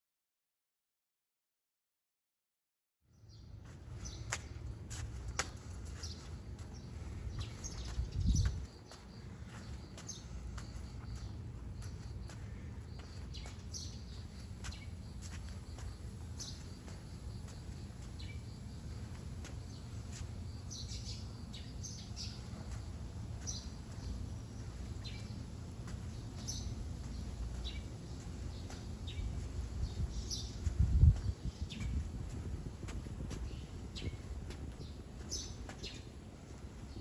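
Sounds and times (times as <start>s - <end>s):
small birds chirping: 3.2s - 37.0s.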